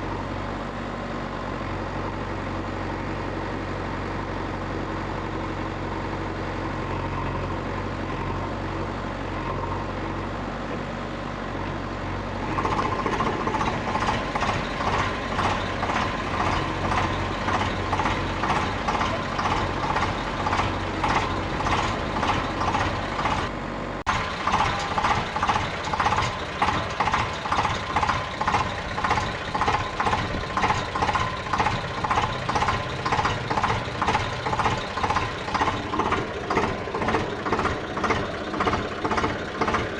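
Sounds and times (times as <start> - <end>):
pulsing mechanical sound: 24.1 - 39.9.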